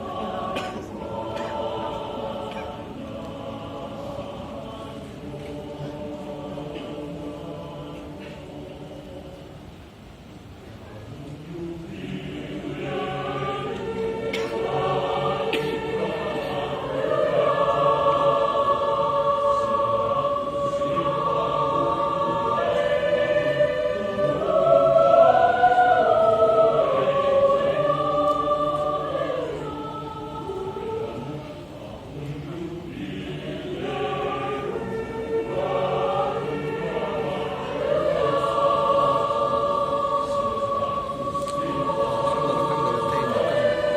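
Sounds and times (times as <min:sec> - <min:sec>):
choir singing a hymn: 0:00.0 - 0:09.8, 0:11.0 - 0:43.9.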